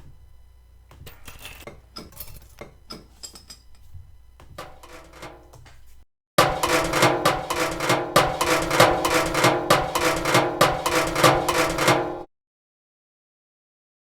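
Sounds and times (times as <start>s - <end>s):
rapid uneven knocking hits: 4.6s - 5.5s, 6.4s - 12.3s.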